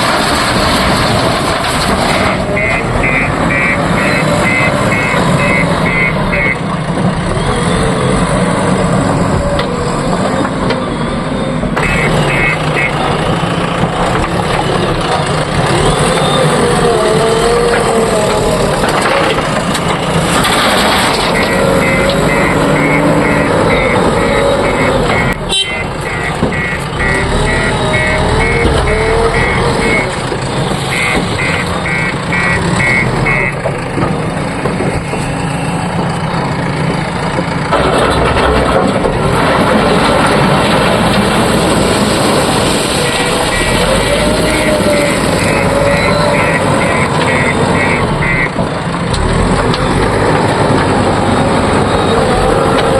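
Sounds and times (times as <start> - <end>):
diesel machinery running: 0.0 - 52.9
high electronic beeps: 2.6 - 6.6, 11.8 - 13.0, 21.3 - 30.2, 30.8 - 33.6, 43.5 - 48.5.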